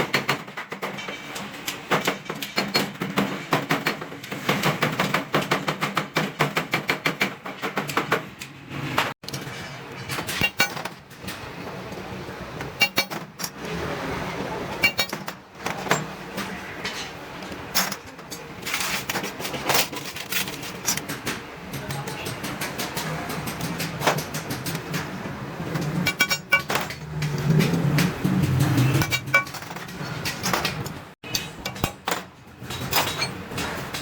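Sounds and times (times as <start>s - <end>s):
hammer striking sheet metal: 10.2s - 11.0s, 12.8s - 13.5s, 14.8s - 16.1s, 20.9s - 32.2s.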